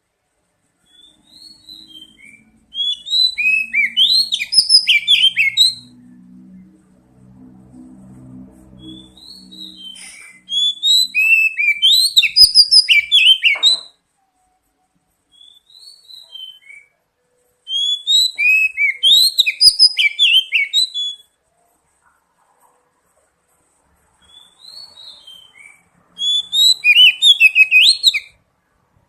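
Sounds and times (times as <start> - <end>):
bird song of whistled notes: 0.8 - 6.2, 8.7 - 21.8, 24.2 - 28.4.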